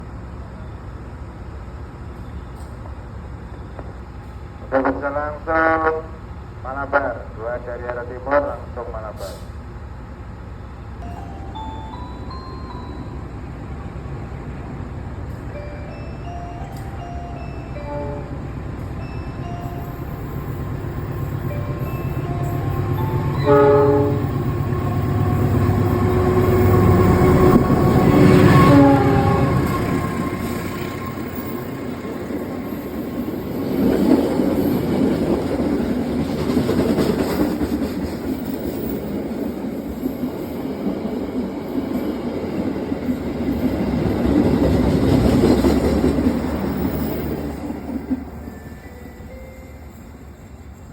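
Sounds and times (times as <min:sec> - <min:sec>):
train wheels on rails: 0:00.0 - 0:04.7, 0:08.4 - 0:50.9
diesel locomotive engine rumbling: 0:00.0 - 0:50.9
train horn: 0:21.8 - 0:31.7.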